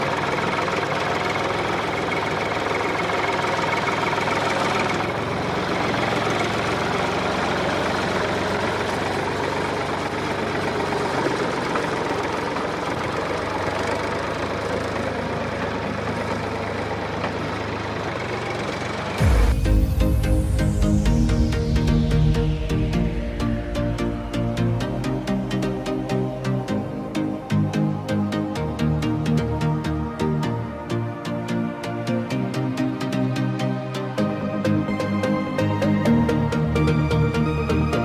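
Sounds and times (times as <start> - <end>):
model tractor motor running: 0.0 - 19.2
electronic music: 19.2 - 38.0.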